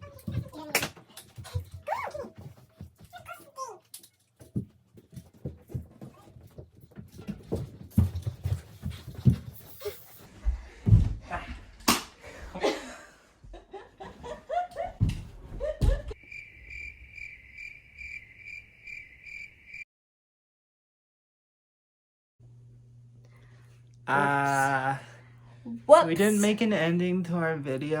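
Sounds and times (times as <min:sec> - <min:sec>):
people laughing: 0:12.2 - 0:16.2.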